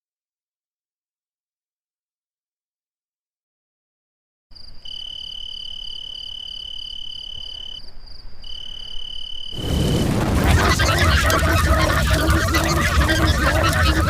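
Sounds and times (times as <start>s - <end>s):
fast pulsing trill: 9.6s - 14.0s
harsh noisy blare: 9.6s - 14.0s
steady high-pitched tone: 9.6s - 14.0s.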